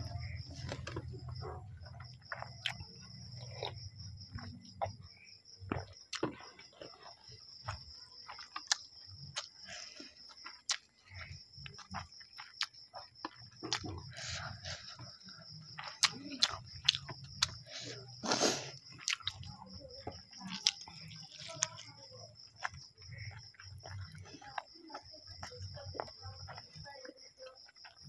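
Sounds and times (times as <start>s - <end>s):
person chewing food: 0.0s - 26.9s, 27.7s - 28.0s.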